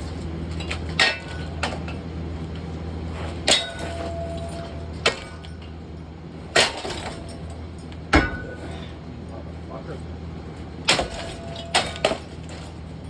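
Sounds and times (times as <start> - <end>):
metallic ring: 3.5 - 5.7
strikes on metal fan: 8.1 - 8.7.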